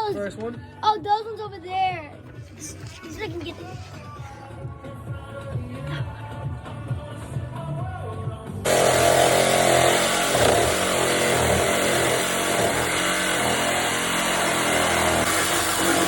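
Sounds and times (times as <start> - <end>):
power tool cutting steel pipe: 8.7 - 16.0.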